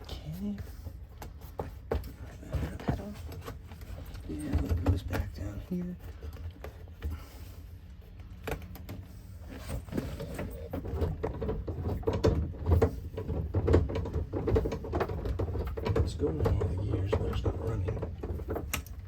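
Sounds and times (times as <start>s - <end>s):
gear lever clunks and clicks: 10.1s - 19.0s.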